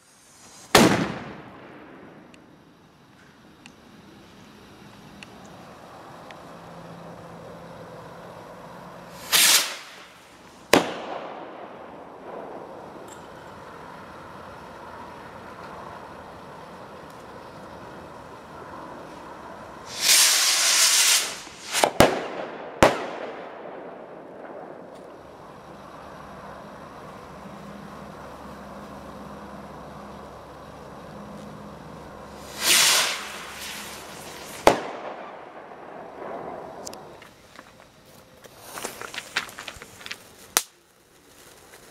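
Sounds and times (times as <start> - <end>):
firework rocket launch hiss: 0.0 - 2.3, 6.0 - 16.2, 17.1 - 25.6, 32.2 - 37.5
firework bang echoing: 0.5 - 2.3, 9.1 - 13.1, 19.9 - 25.0, 32.4 - 37.1.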